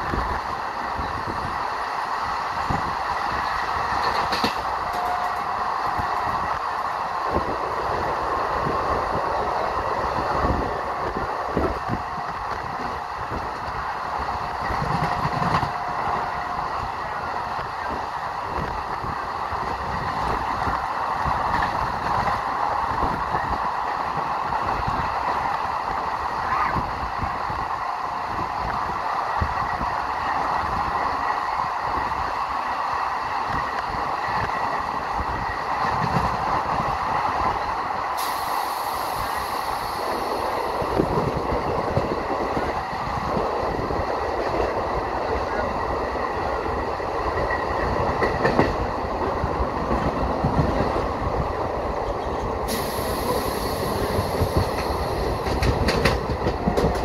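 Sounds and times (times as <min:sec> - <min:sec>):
train wheels rumbling: 0:00.0 - 0:57.0
high hiss: 0:38.1 - 0:40.8, 0:52.7 - 0:55.4.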